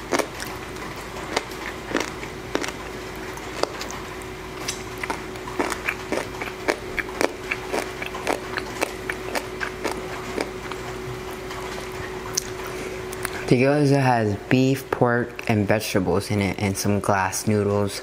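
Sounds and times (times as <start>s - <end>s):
chewing with wet mouth clicks: 0.0s - 13.5s.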